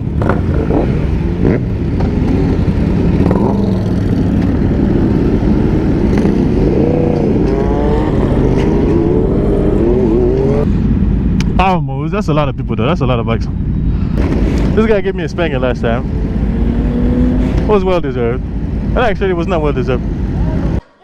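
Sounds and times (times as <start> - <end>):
motorcycle engine running: 0.0 - 11.4
wind rush on microphone: 0.0 - 20.8.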